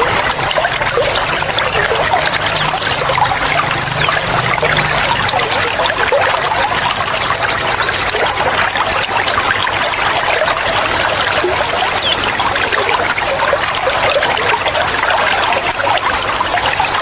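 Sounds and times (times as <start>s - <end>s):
high bird chirps: 0.0s - 5.5s
running water trickling: 0.0s - 17.0s.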